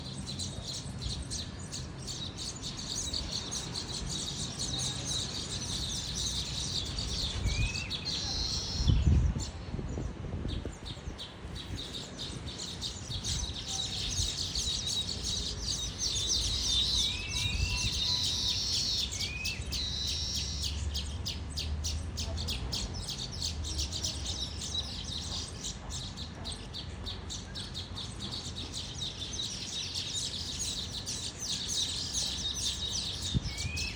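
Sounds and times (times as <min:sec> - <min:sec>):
small birds chirping: 0:00.0 - 0:33.9
wind rumble on microphone: 0:00.2 - 0:18.7, 0:32.9 - 0:33.9.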